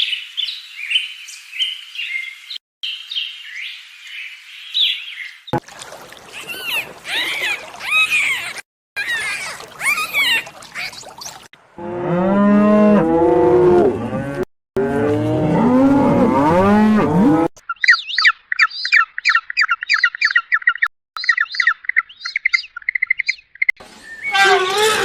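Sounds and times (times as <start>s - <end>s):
bird chirping: 6.2s - 11.5s, 17.6s - 24.4s
cow mooing: 11.8s - 17.5s.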